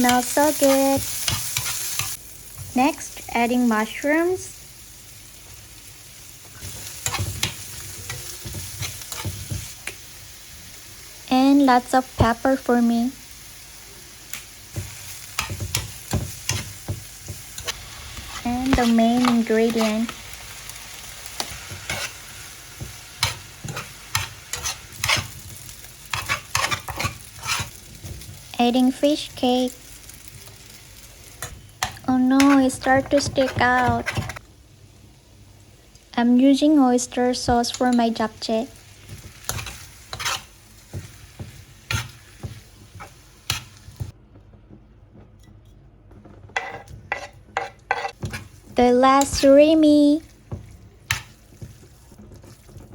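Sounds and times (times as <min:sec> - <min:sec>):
noodles sizzling in a pan: 0:00.0 - 0:44.2, 0:46.2 - 0:52.9
utensil scraping a pan: 0:21.4 - 0:22.3, 0:23.2 - 0:25.4, 0:26.1 - 0:27.8, 0:39.4 - 0:41.0, 0:46.5 - 0:48.5.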